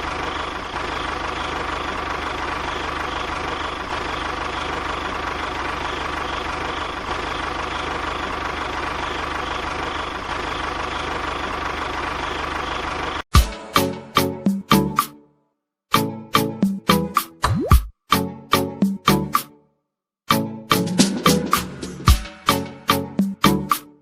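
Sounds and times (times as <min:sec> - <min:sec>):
loud music with sharp beats: 0:13.4 - 0:13.8, 0:20.8 - 0:22.6.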